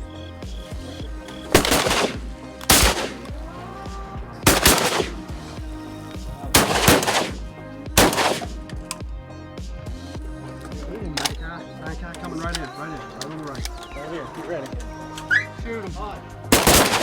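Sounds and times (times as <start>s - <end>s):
shotgun blasts: 1.5s - 3.4s, 4.5s - 5.4s, 6.6s - 8.7s, 16.5s - 17.0s.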